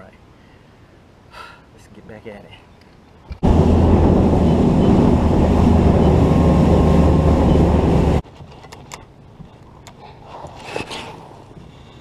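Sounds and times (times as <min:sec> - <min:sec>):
wind and water rushing: 0:03.3 - 0:08.2
outboard motor running: 0:03.4 - 0:08.2.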